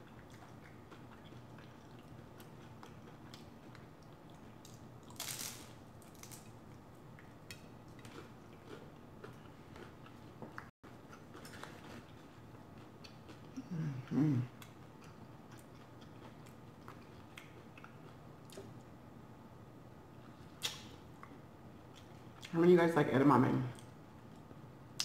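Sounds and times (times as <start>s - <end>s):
chewing egg roll: 0.0s - 19.0s.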